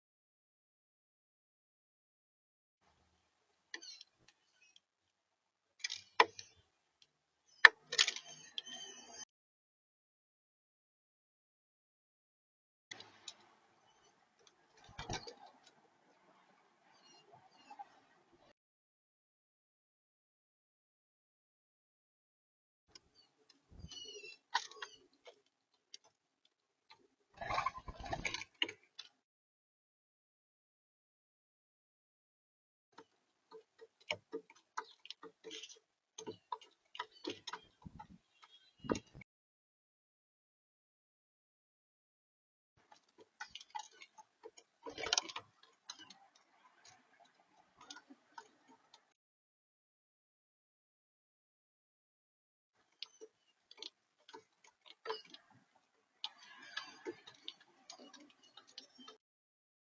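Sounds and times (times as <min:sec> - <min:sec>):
high bird chirps: 0:23.2 - 0:25.1.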